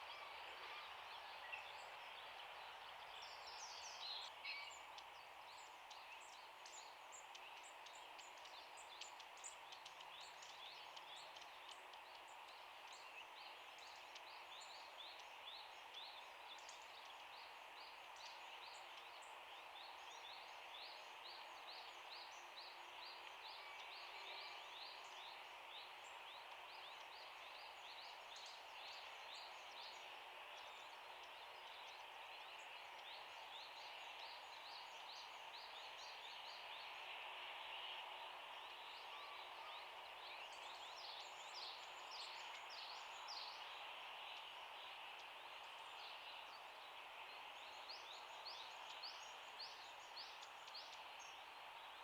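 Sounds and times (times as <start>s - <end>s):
faint outdoor hiss: 0.0s - 52.0s
songbirds chirping: 0.7s - 52.0s.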